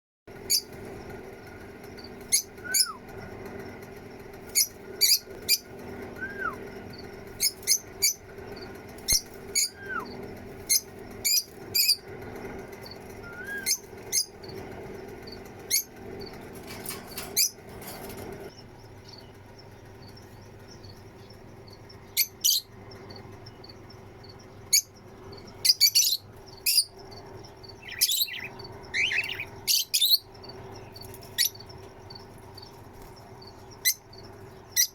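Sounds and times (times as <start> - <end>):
steady low hum: 0.3 - 34.9
small parrots chirping: 4.5 - 12.0, 12.9 - 14.6, 24.7 - 27.0, 27.6 - 34.9.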